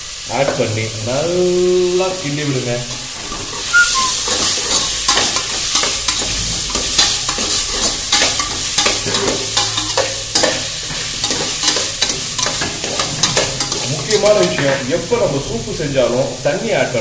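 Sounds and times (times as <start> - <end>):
food sizzling in hot oil: 0.0 - 17.0
metal spatula scraping a pot: 2.9 - 14.7.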